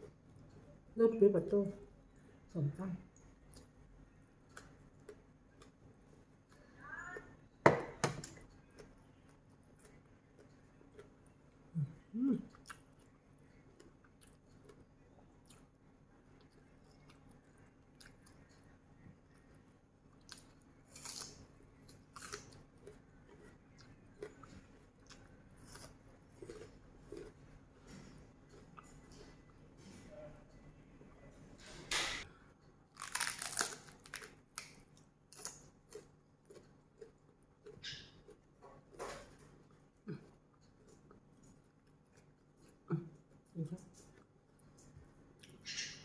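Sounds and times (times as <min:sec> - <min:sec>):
person chewing food: 0:03.2 - 0:06.6, 0:07.9 - 0:30.0, 0:32.6 - 0:45.7
crunchy bites: 0:32.9 - 0:38.4.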